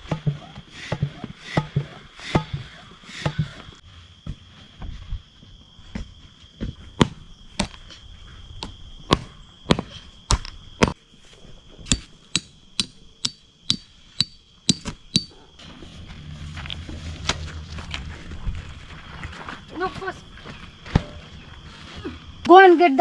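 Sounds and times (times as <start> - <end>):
cricket trill: 0.0 - 23.0
sharp knocking strikes: 9.1 - 11.0, 11.9 - 15.4.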